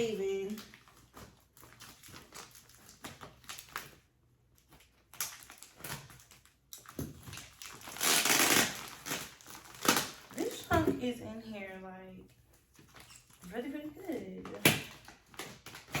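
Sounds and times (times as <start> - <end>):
packaging ripping: 0.0 - 10.7, 14.7 - 16.0.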